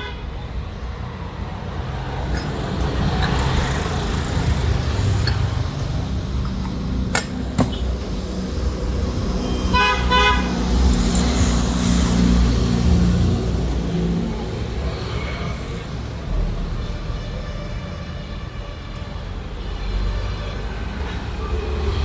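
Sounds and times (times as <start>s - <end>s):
vehicle engines rumbling: 0.0s - 22.0s
horn beeping: 9.4s - 11.6s.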